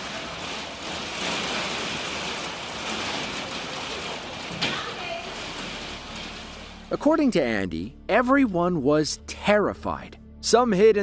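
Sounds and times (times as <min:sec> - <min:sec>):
wind-driven heavy rain: 0:00.0 - 0:07.1.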